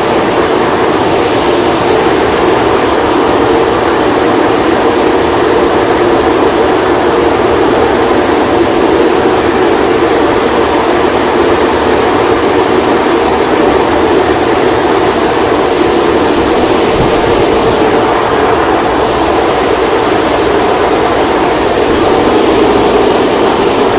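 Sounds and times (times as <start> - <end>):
car wash machinery rushing: 0.0 - 23.9.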